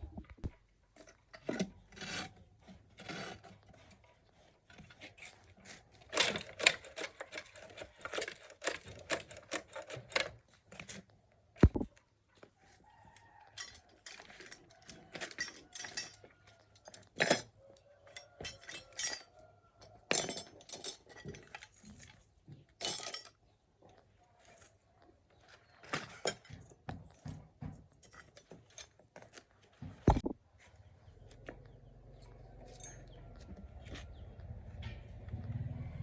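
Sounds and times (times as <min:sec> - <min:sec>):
metal tools clinking: 0:13.6 - 0:17.5, 0:18.1 - 0:19.4, 0:20.1 - 0:22.2, 0:22.8 - 0:23.4, 0:25.8 - 0:29.4, 0:32.6 - 0:33.5.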